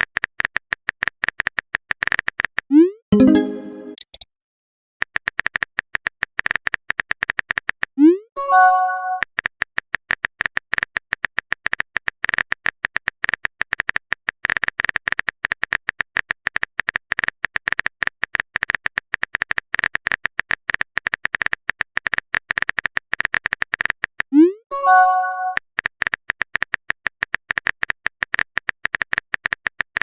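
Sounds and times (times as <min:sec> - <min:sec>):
keyboard typing clicks: 0:03.2 - 0:04.2.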